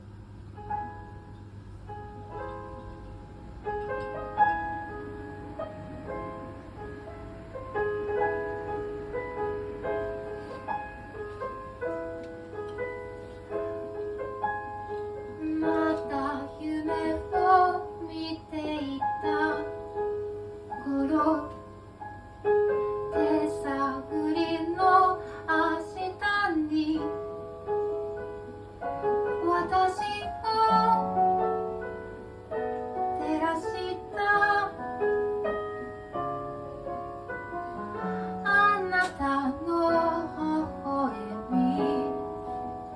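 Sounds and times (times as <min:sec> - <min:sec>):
piano-like keyboard chords: 0:00.0 - 0:42.9
woman singing: 0:15.4 - 0:19.8, 0:20.7 - 0:21.6, 0:23.1 - 0:27.3, 0:29.4 - 0:31.3, 0:33.2 - 0:35.1, 0:38.4 - 0:42.4.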